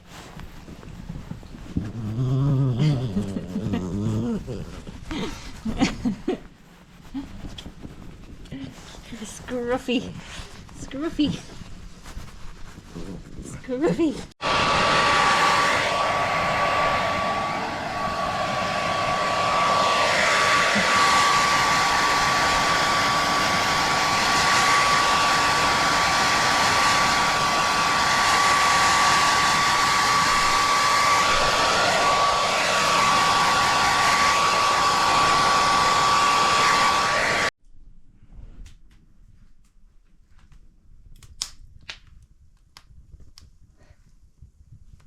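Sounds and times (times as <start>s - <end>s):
hair dryer running: 14.4s - 37.6s.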